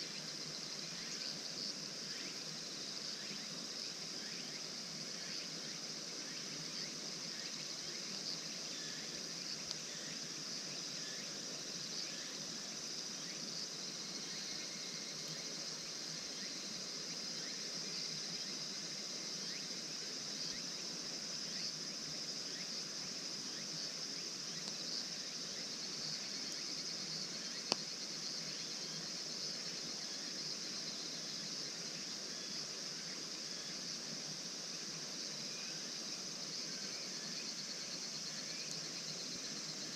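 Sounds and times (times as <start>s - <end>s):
crickets and insects chirring: 0.0s - 39.9s
small ticks: 9.6s - 9.9s, 24.5s - 25.0s, 27.5s - 28.0s, 38.1s - 39.6s.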